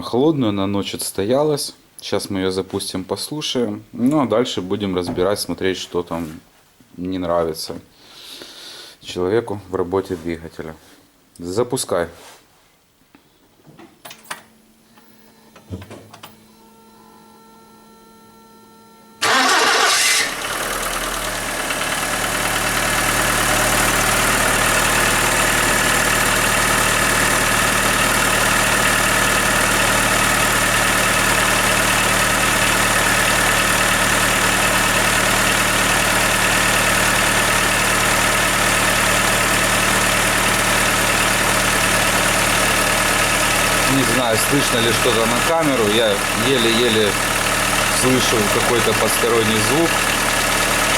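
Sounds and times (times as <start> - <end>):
engine cranking: 19.2 - 29.4, 39.6 - 50.9
car engine idling: 19.2 - 50.9.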